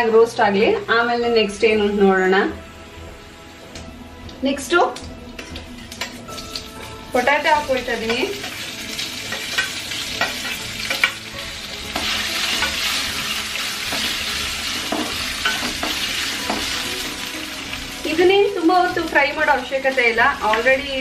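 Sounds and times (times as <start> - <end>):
potatoes sizzling in hot oil: 4.5 - 21.0.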